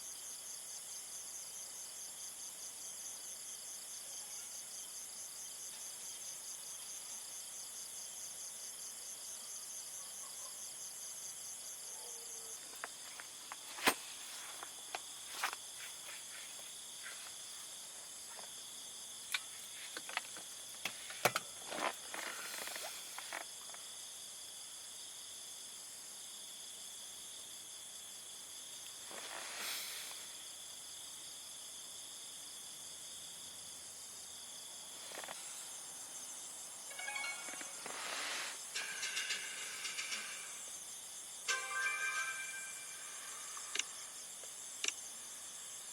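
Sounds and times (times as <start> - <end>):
crickets and insects chirping: 0.0 - 45.9
short hiss: 29.0 - 30.5, 37.4 - 38.9.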